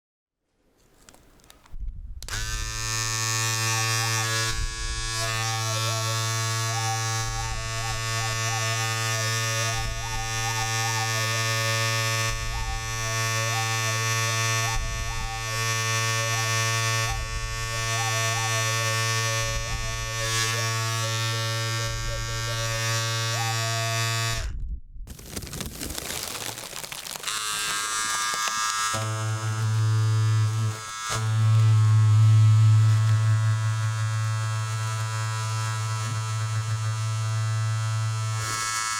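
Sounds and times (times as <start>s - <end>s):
low pulse: 1.8s - 25.1s
electric shaver buzzing: 2.3s - 24.5s, 27.2s - 38.9s
wavering higher tone: 2.9s - 24.4s.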